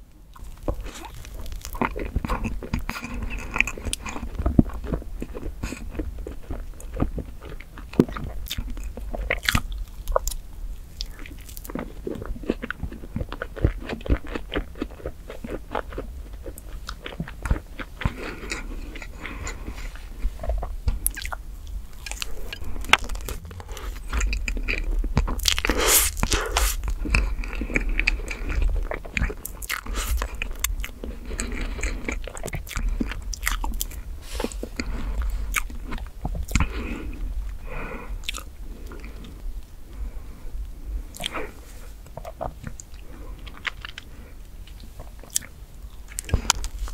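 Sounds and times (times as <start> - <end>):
close-up wet chewing: 0.3 - 46.9.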